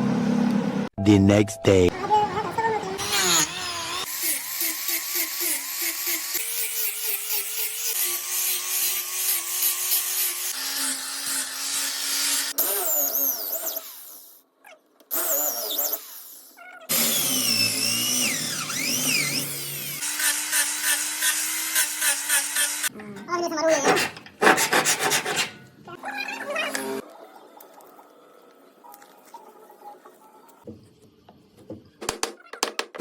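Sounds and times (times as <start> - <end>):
power tool grinding wood: 15.1 - 22.9.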